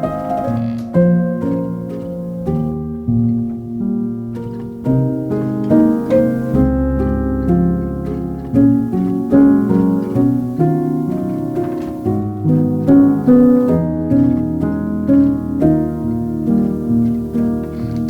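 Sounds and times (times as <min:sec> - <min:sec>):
gentle harp and piano music: 0:00.0 - 0:18.0
low held bass note: 0:06.5 - 0:10.9.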